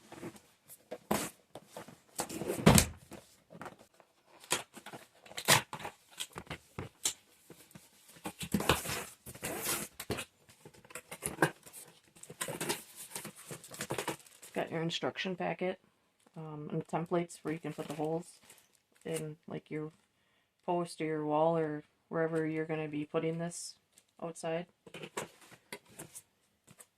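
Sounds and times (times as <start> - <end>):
cardboard packaging rustling: 0.0 - 14.6.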